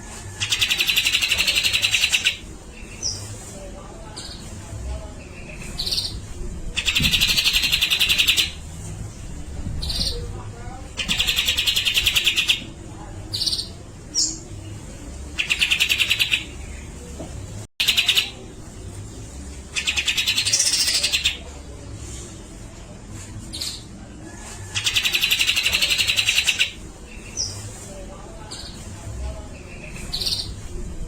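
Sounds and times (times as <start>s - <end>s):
bird stuttering chatters: 6.8s - 8.6s, 11.0s - 12.6s, 15.4s - 16.5s, 19.8s - 21.4s.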